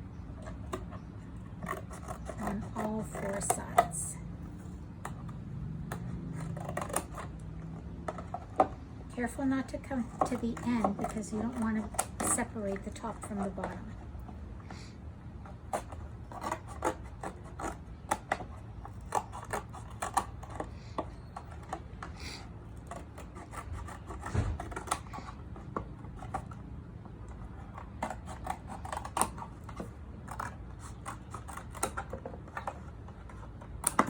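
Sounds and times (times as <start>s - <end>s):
low steady hum: 0.0s - 34.0s
scissors snipping carton: 1.6s - 4.1s, 8.1s - 14.0s, 22.9s - 26.6s, 27.6s - 34.0s.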